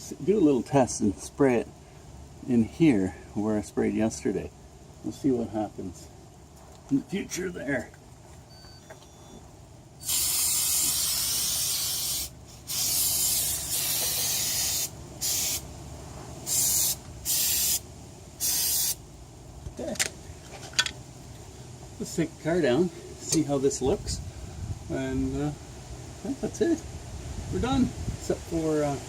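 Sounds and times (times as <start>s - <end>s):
aerosol can spraying: 10.0s - 15.6s, 16.5s - 17.8s, 18.4s - 19.0s.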